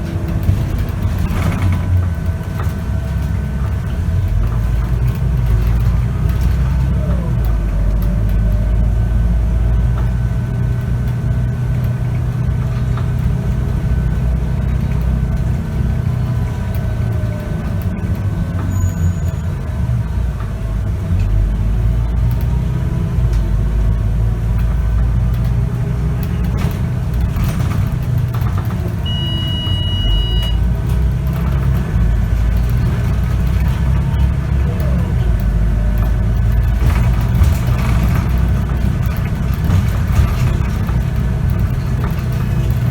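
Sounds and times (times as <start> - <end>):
bus diesel engine rumbling: 0.0 - 42.9
high beep: 29.0 - 30.6.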